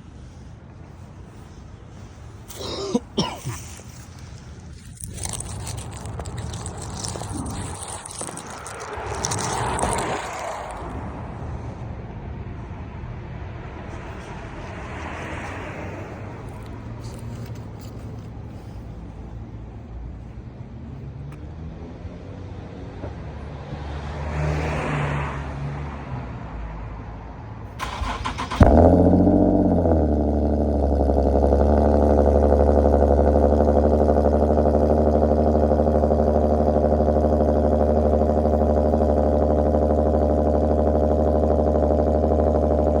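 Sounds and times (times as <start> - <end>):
car engine starting and idling: 0.1 - 11.8, 13.8 - 20.5, 27.7 - 43.0
car starter cranking: 27.8 - 33.4.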